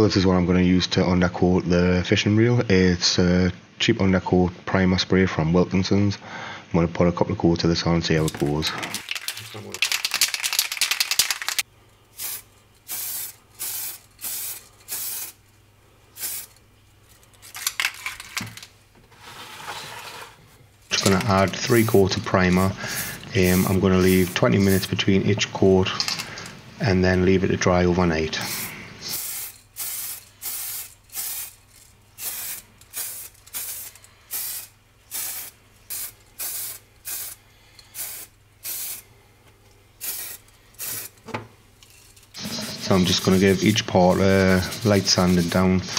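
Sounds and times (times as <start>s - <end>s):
aerosol can rattling: 8.2s - 15.4s, 17.4s - 18.7s
spray hiss bursts: 12.2s - 15.4s, 16.2s - 16.5s, 28.4s - 31.6s, 32.2s - 39.1s, 40.0s - 41.2s, 42.4s - 45.9s.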